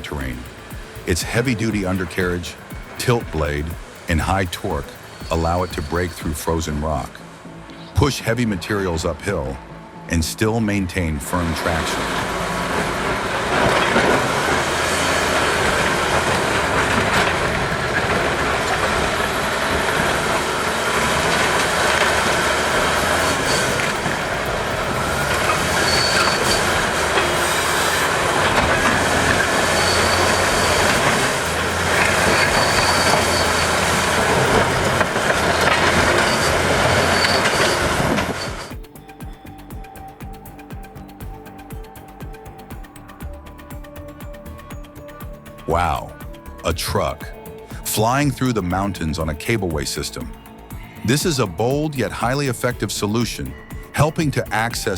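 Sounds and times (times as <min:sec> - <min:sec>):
high squeals: 0:00.0 - 0:08.1, 0:11.3 - 0:38.8
heavy machinery metallic clatter: 0:12.0 - 0:38.8.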